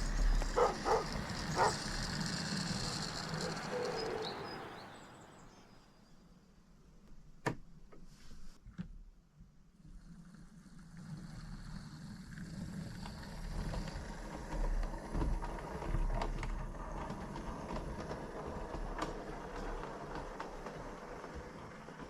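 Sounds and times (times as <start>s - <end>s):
track clicks: 0.0s - 5.0s
model train rumbling on track: 0.0s - 6.1s, 10.0s - 22.0s.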